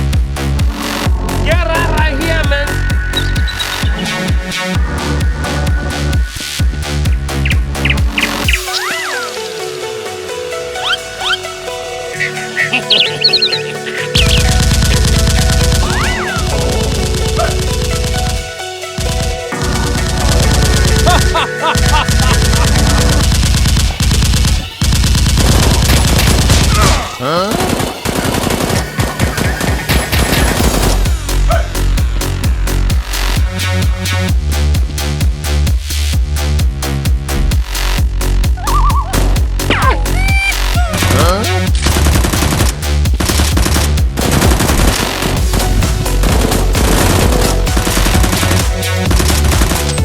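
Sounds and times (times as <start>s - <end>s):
electronic music with heavy bass: 0.0s - 50.0s
booming gunshots: 19.7s - 31.2s, 41.0s - 50.0s
automatic gunfire: 22.1s - 26.9s, 27.5s - 30.8s, 46.2s - 50.0s.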